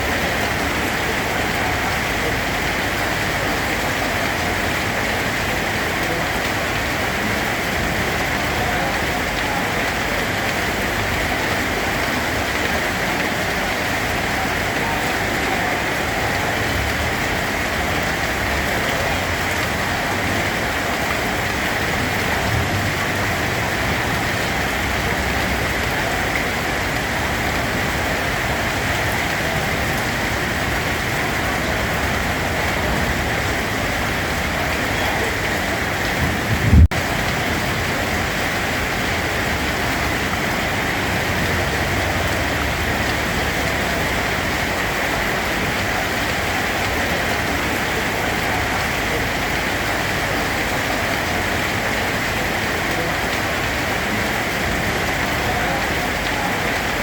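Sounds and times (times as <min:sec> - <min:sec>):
steady rain: 0:00.0 - 0:57.0
low rumble and thump: 0:36.1 - 0:37.2.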